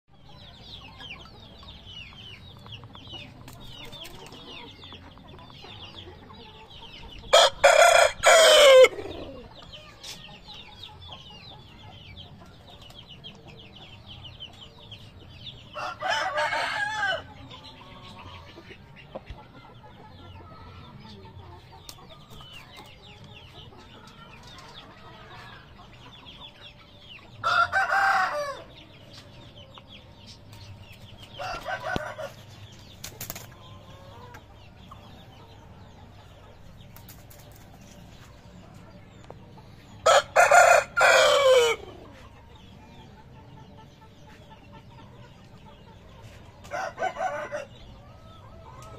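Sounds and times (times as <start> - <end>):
roosters crowing: 7.3 - 9.5, 15.7 - 17.5, 27.4 - 28.8, 31.3 - 32.6, 40.0 - 42.2, 46.6 - 48.0.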